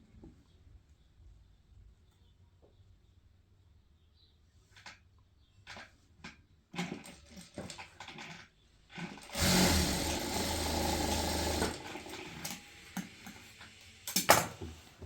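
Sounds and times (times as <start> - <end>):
electric sewing machine running: 9.0 - 14.2.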